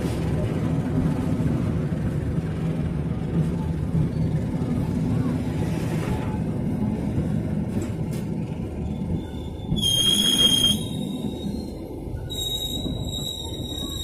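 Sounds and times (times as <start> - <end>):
train rumbling: 0.0 - 14.0
high-pitched metallic squeal: 9.2 - 14.0.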